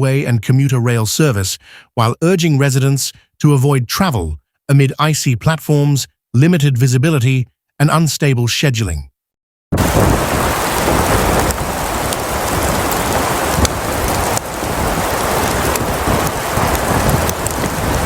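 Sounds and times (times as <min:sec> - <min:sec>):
strong wind on microphone: 0:09.8 - 0:18.0.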